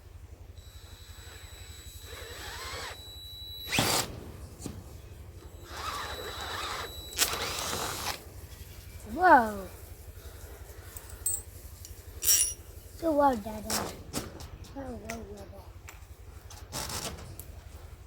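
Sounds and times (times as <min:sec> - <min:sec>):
power drill whining: 0:00.6 - 0:09.8
drill boring through plastic pipe: 0:00.7 - 0:04.1, 0:05.6 - 0:08.2.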